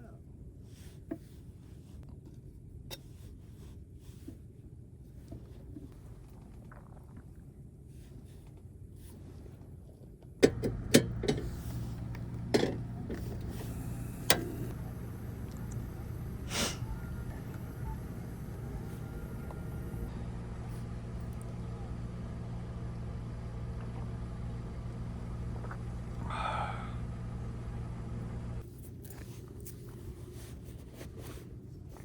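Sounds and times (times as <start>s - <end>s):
quiet low rumble: 4.4s - 32.0s
sharp knocks and clicks: 10.4s - 13.6s
motor humming: 10.4s - 28.6s.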